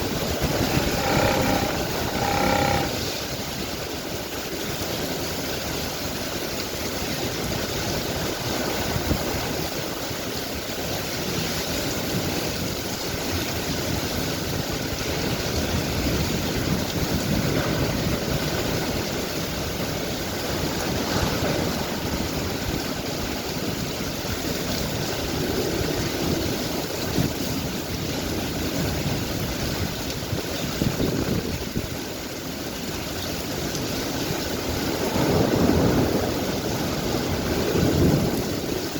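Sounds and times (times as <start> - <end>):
heavy rain pouring: 0.0 - 38.9
wind gusts: 11.7 - 32.1, 33.2 - 38.9.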